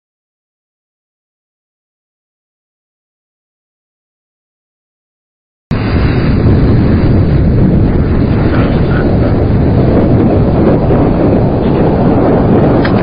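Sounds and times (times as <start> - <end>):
wind buffeting the microphone: 5.7 - 13.0.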